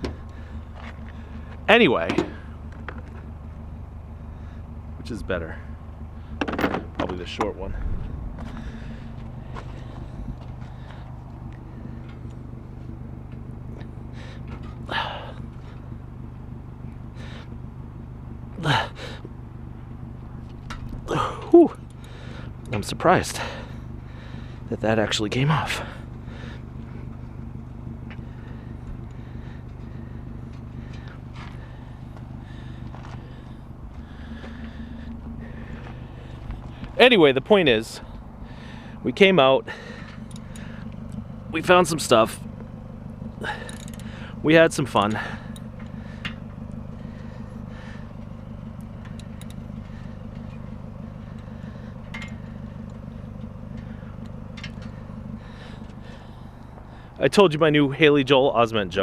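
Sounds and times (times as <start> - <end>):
vehicle engine idling: 0.0 - 59.0
faint clicks and rattles: 39.9 - 57.1.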